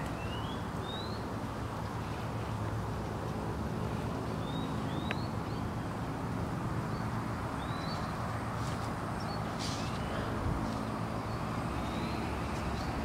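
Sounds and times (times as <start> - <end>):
birds chirping: 0.0 - 2.2, 4.2 - 6.2, 6.8 - 13.0.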